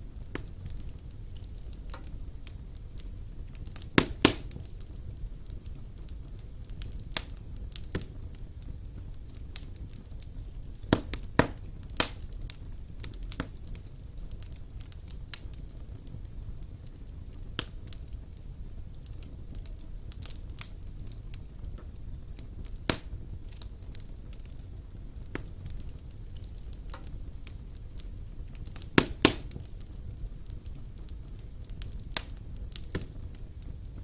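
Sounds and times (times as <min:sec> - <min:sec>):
fire crackling and popping: 0:00.0 - 0:34.0
low rush of flames: 0:00.0 - 0:34.0.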